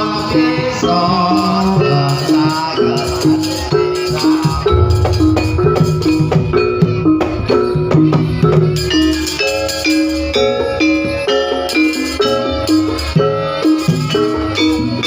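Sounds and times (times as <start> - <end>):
drums: 0.0 - 15.0
gamelan melody on metal notes: 0.0 - 15.0
heavy boosted bass: 4.6 - 7.4.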